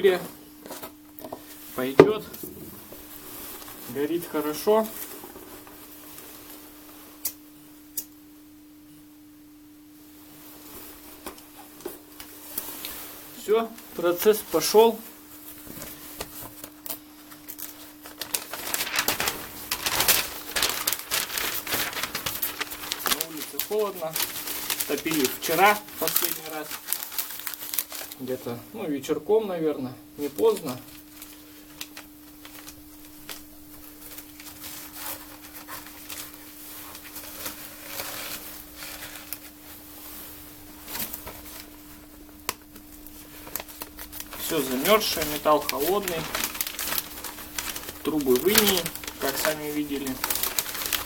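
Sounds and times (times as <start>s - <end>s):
steady hum: 0.0s - 51.0s
steady low hum: 0.2s - 12.3s
fire crackling in a stove: 9.9s - 28.6s, 30.2s - 51.0s
wood fire crackling and popping: 16.8s - 28.1s, 43.5s - 51.0s.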